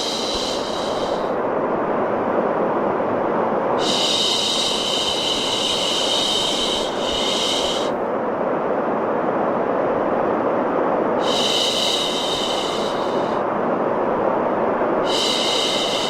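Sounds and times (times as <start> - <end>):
breathy shushing: 0.0 - 1.4.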